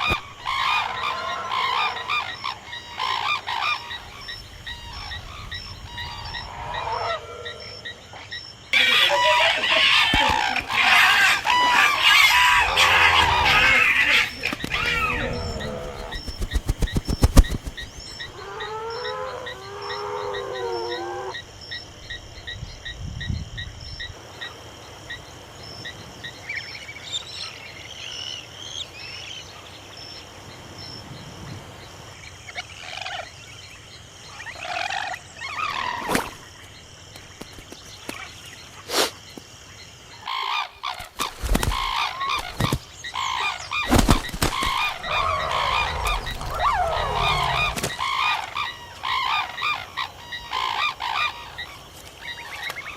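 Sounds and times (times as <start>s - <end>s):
animal calls: 8.8s - 21.3s, 41.7s - 51.5s
rapid high chirps: 12.4s - 18.3s.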